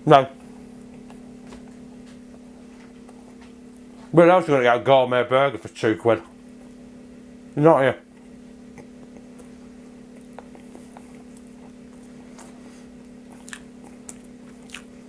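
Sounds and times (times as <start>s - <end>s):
steady low hum: 0.0s - 15.0s
man chewing with mouth clicks: 0.8s - 3.9s, 8.1s - 15.0s.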